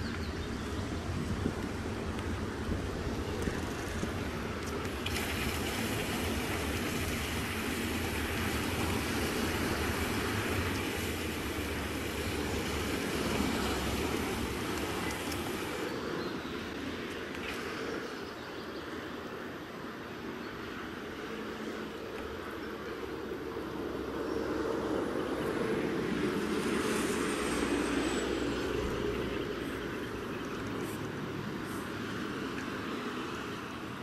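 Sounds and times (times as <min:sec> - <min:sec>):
wind on microphone: 0:00.0 - 0:15.9
bicycle tyres rolling on road: 0:00.1 - 0:16.2
bicycle rattling: 0:03.3 - 0:15.8.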